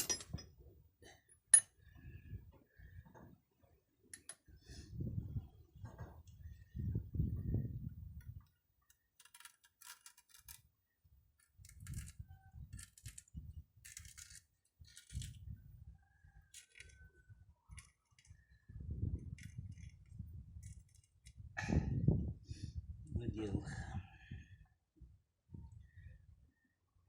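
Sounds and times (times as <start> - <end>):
small metal parts clinking: 0.0 - 0.5, 8.9 - 10.7, 11.4 - 15.4, 16.5 - 17.0, 17.7 - 18.4, 19.3 - 21.4.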